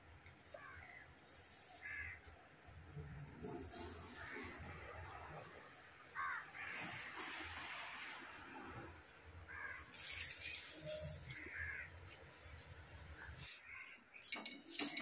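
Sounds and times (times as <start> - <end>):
crows cawing: 0.6 - 1.0, 1.8 - 2.2, 6.2 - 6.8, 9.5 - 9.9, 11.3 - 12.0, 13.4 - 14.0.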